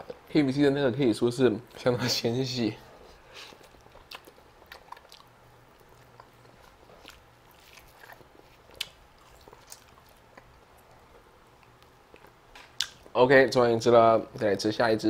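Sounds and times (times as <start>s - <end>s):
chewing and biting chicken: 3.2s - 13.1s
wet mouth clicks: 11.6s - 13.1s.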